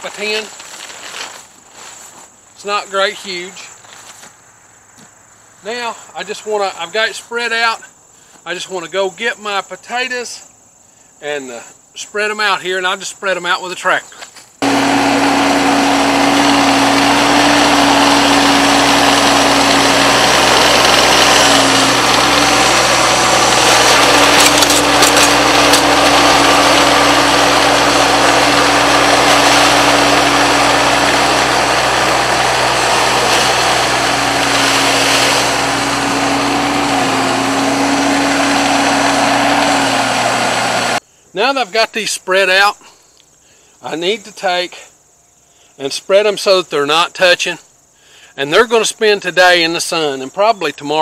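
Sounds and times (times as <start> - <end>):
diesel tractor engine running: 14.6 - 41.0
steady whine: 14.6 - 41.0.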